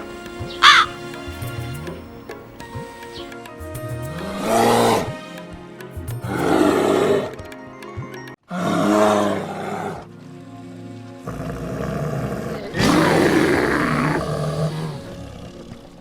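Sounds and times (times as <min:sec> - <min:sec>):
background music: 0:00.0 - 0:16.0
large animal calling: 0:00.6 - 0:01.0.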